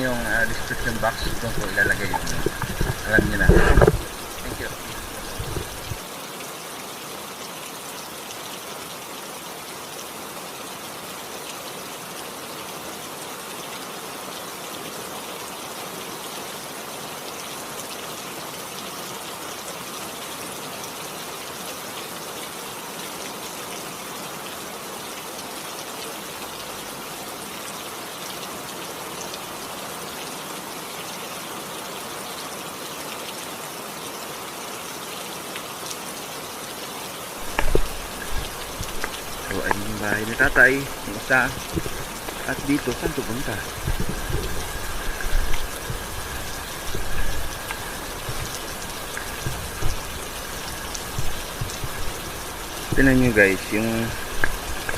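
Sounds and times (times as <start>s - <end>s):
close raindrops hitting: 0.0s - 6.1s, 37.3s - 54.9s
rain hiss: 0.0s - 54.9s.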